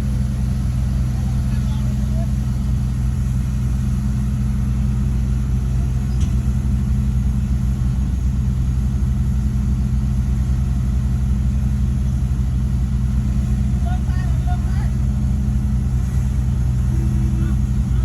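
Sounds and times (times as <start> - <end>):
heavy diesel engine droning: 0.0 - 18.0.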